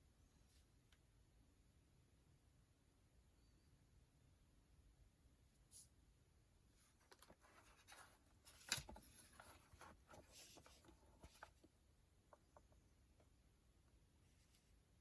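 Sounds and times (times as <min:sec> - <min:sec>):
scratchy rustling: 0:06.8 - 0:11.7.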